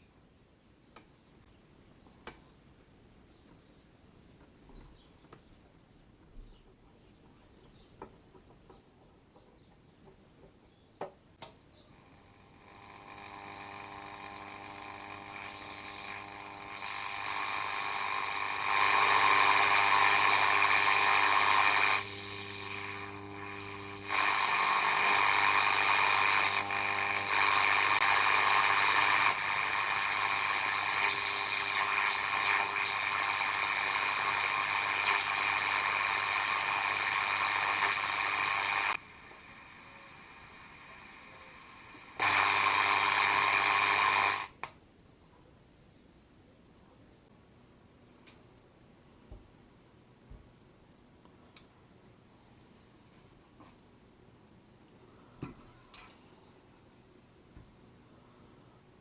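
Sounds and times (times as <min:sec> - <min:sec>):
radio hiss and hum: 0:11.8 - 0:44.7.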